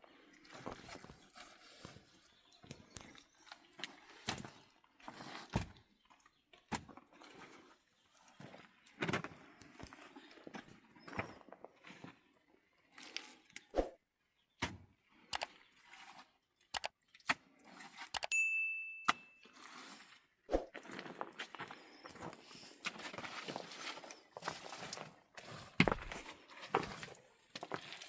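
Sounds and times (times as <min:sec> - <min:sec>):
ringing metallic ding: 0:18.3 - 0:19.4.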